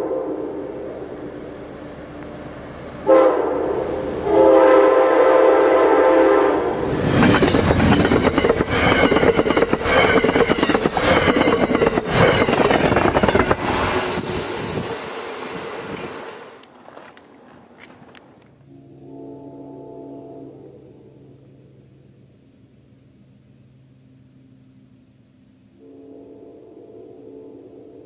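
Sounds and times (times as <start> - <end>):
train air horn blasts: 0.0 - 1.1, 3.0 - 7.0, 18.7 - 21.3, 25.8 - 28.0
train rushing past: 0.0 - 17.9
wheels clattering over rail joints: 6.8 - 14.8, 15.4 - 18.6.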